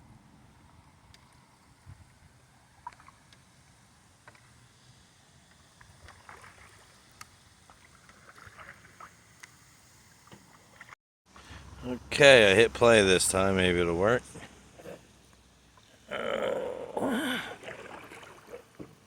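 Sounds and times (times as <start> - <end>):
paddle splashes and drips: 0.9 - 11.0, 17.3 - 19.0.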